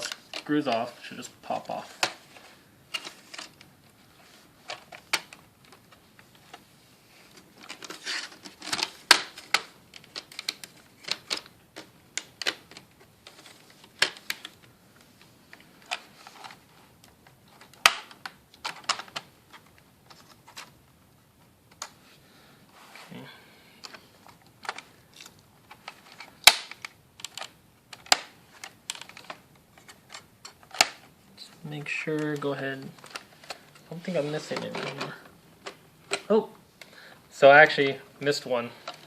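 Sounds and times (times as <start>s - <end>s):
plastic scraping: 23.8s - 36.4s.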